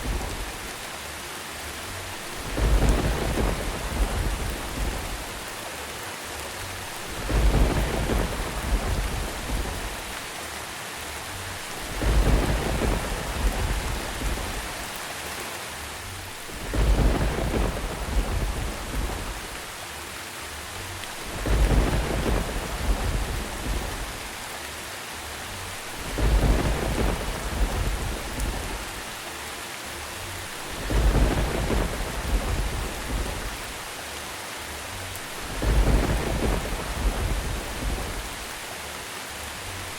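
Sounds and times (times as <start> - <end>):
thunder rumble: 0.0 - 0.8, 2.1 - 5.6, 6.7 - 10.4, 11.4 - 15.0, 16.2 - 19.8, 21.0 - 24.5, 25.6 - 29.2, 30.4 - 34.0, 35.2 - 38.6
steady rain: 0.0 - 39.9.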